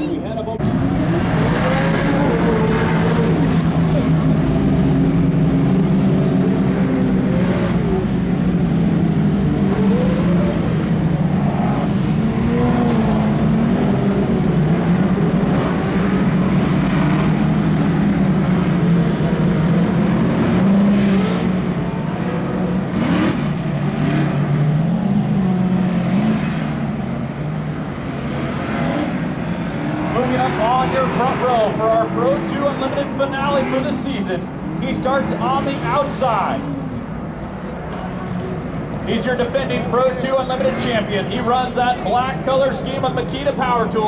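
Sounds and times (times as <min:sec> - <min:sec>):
off-road race vehicle engines revving: 0:00.0 - 0:44.0.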